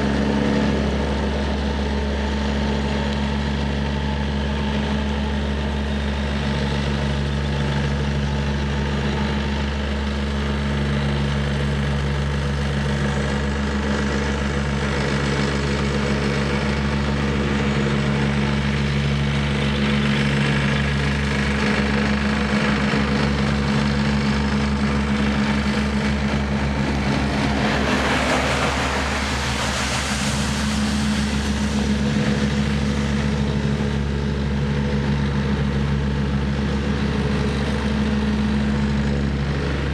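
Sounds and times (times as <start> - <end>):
excavator diesel engine running: 0.0 - 39.9
rushing noise: 15.2 - 39.9.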